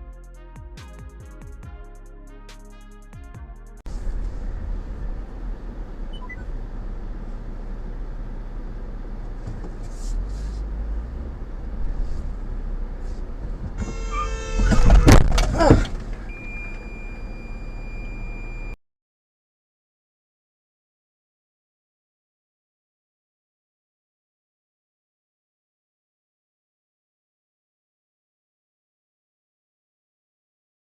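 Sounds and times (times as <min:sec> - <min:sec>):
car rumbling on road: 0:03.8 - 0:18.8
tire squeal: 0:13.0 - 0:18.8
car crash crunching impacts: 0:13.4 - 0:16.3.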